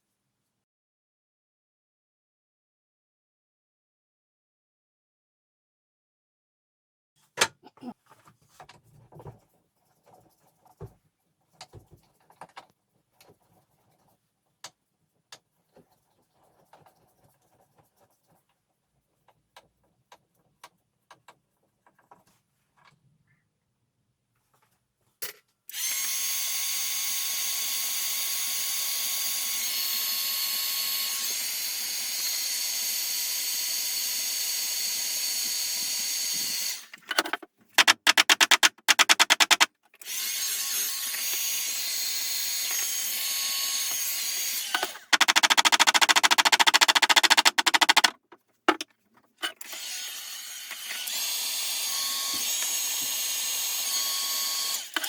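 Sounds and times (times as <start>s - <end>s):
electric drill whining: 25.7s - 37.0s, 38.1s - 48.1s, 49.6s - 55.0s
fast rattling clicks: 37.0s - 39.7s, 44.8s - 48.8s.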